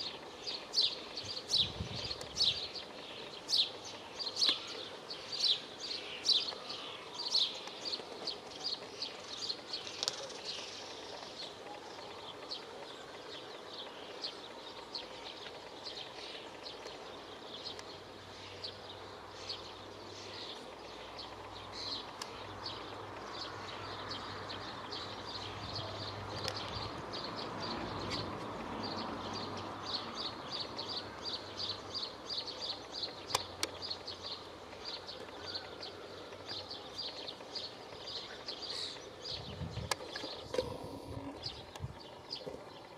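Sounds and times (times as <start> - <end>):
low steady hum: 36.2 - 42.9.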